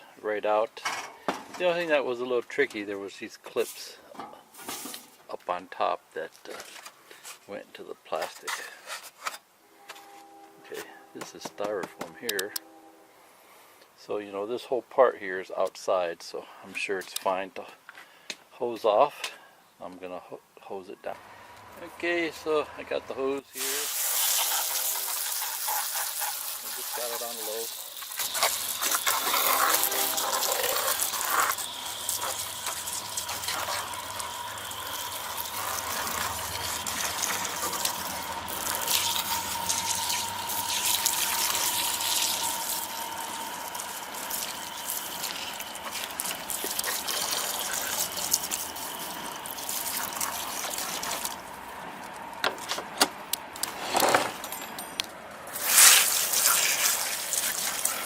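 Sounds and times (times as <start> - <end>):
hose spraying water on metal: 23.5 - 51.7, 55.5 - 58.0.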